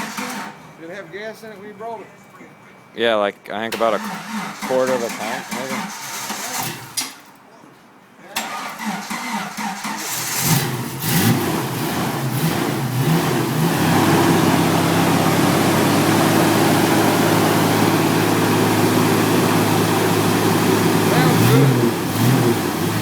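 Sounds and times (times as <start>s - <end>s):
car engine revving and idling: 9.9s - 23.0s.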